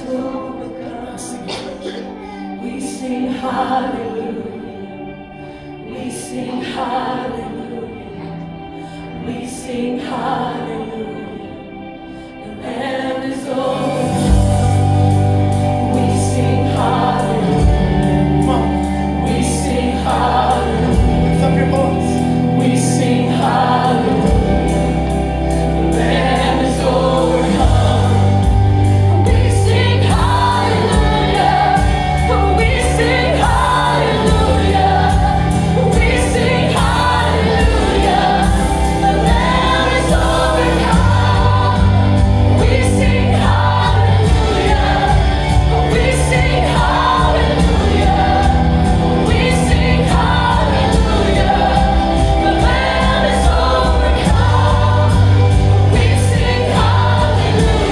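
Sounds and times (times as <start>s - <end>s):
congregation singing: 0.0s - 57.9s
band with bass and drums: 14.0s - 57.9s.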